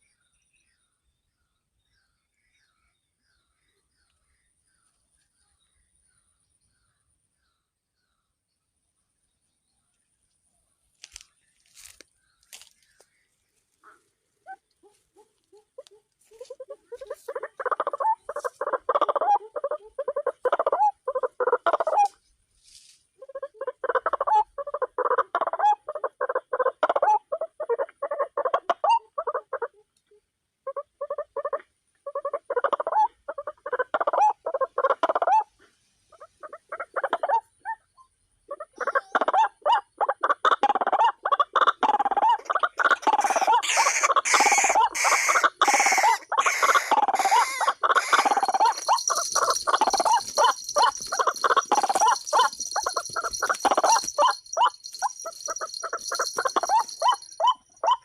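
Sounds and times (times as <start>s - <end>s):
waterhen calling harsh notes: 42.4s - 58.0s.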